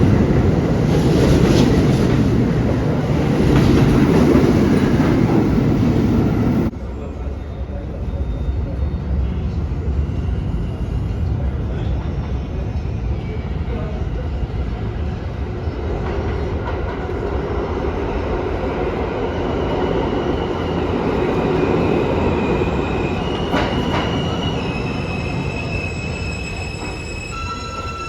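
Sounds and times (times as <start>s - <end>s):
subway train wheels rumbling on rail: 0.0s - 28.0s
high wheel or brake squeals: 22.3s - 28.0s.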